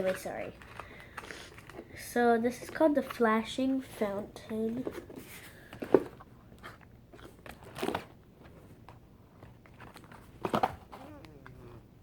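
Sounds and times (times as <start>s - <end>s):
packaging crinkling and clicking: 0.0s - 3.2s, 5.8s - 8.2s, 8.8s - 11.6s.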